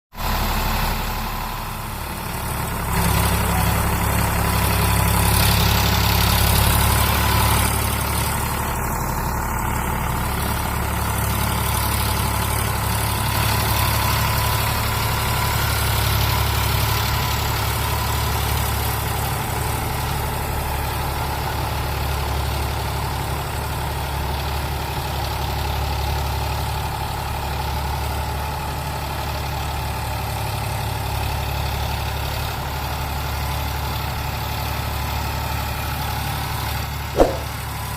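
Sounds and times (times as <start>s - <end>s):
tractor diesel engine running: 0.2s - 37.6s.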